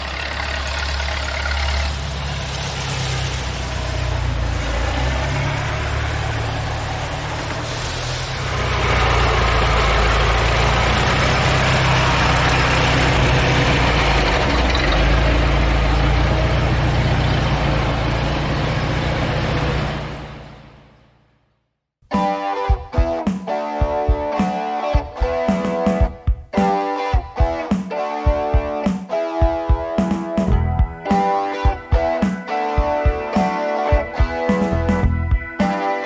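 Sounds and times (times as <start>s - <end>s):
car engine running: 0.0s - 21.3s.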